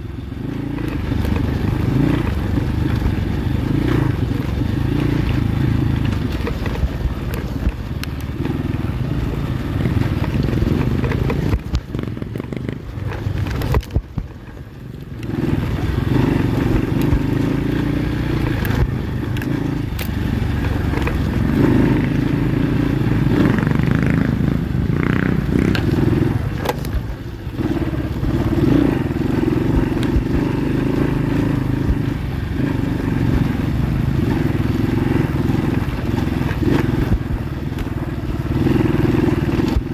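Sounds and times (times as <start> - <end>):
motorbike engine revving: 0.0 - 39.9
bike knocking and clattering: 9.8 - 14.6.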